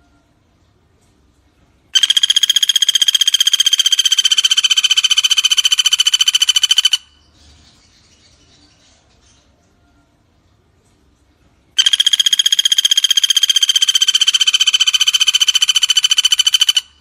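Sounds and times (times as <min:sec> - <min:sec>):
woodpecker rapid rattling trill: 0:02.0 - 0:07.2, 0:11.8 - 0:17.0.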